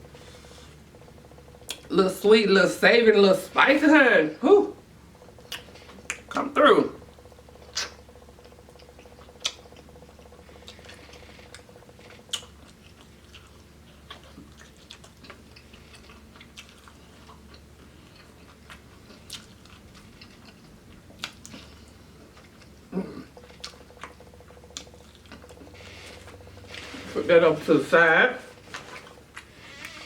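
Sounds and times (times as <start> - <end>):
person chewing fried chicken: 5.2 - 6.4, 7.0 - 27.2, 28.6 - 30.0.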